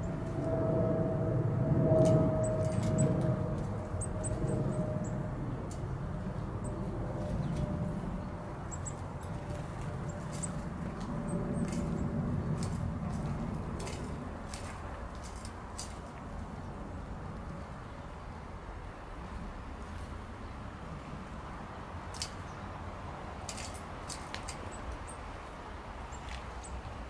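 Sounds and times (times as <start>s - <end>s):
low rumble: 0.0s - 15.0s
small birds chirping: 3.8s - 5.8s, 6.4s - 15.4s.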